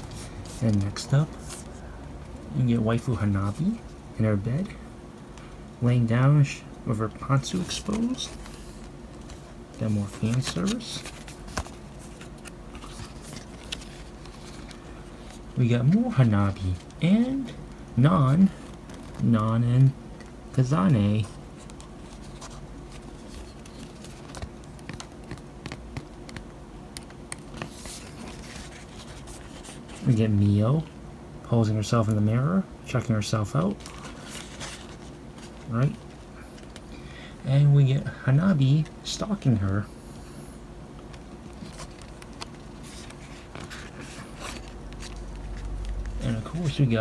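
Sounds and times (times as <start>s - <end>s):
paper rustle: 0.0s - 1.9s, 7.0s - 17.6s, 18.2s - 26.5s, 27.3s - 30.6s, 33.6s - 37.0s, 41.1s - 47.0s
low steady hum: 0.0s - 47.0s.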